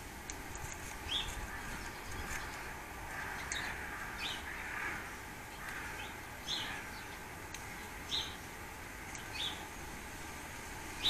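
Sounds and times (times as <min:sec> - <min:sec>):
steady background hiss: 0:00.0 - 0:11.0
birds giving sharp calls: 0:00.9 - 0:08.5.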